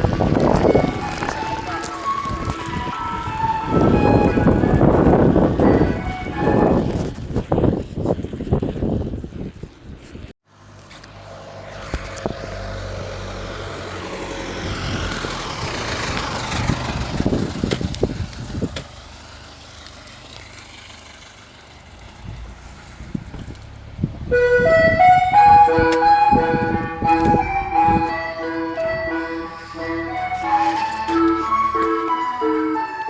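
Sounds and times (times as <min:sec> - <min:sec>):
vehicle passing by: 0:10.5 - 0:33.0.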